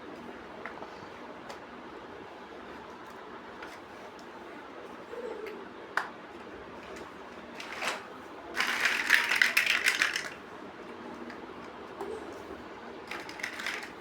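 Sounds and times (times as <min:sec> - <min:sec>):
plastic bricks clicking: 0:08.6 - 0:10.4, 0:13.1 - 0:14.0.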